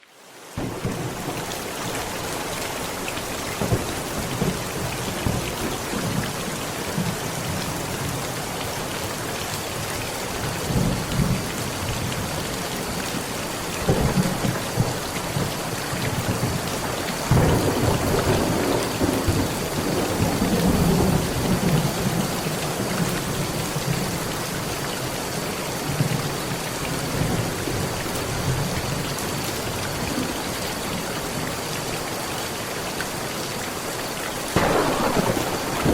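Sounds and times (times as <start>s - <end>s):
heavy rain on metal roof: 0.0s - 35.9s
thunder rumbling: 13.8s - 23.1s, 34.6s - 35.9s.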